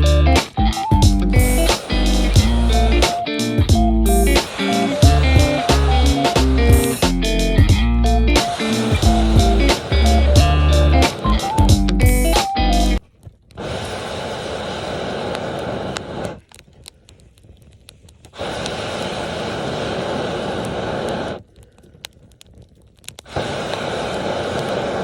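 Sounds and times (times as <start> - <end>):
fire crackling faintly: 0.0 - 25.0
breath blown through a pipe: 18.4 - 21.5.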